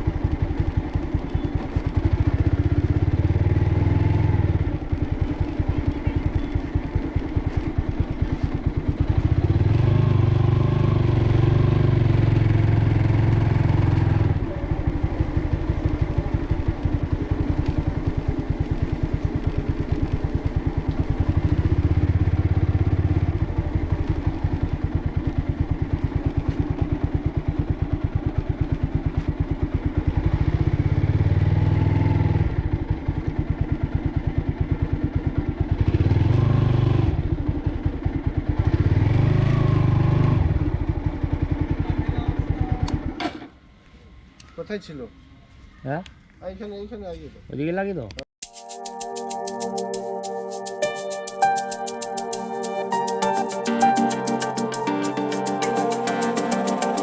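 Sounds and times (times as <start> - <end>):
motorcycle engine running: 0.0 - 43.2.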